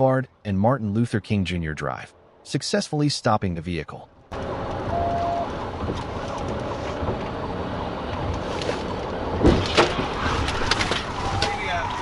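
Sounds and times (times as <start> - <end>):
police vehicle noise: 3.5 - 12.0
police siren: 4.4 - 9.2.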